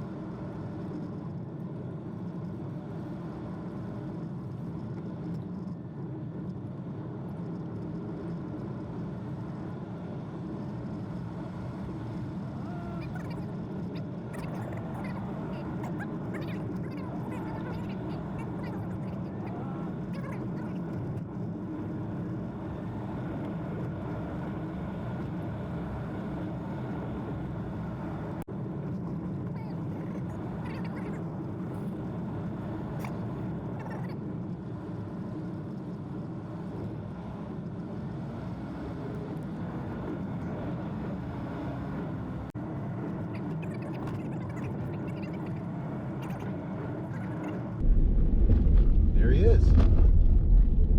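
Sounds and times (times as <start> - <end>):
car road and tyre noise: 45.5 - 50.9.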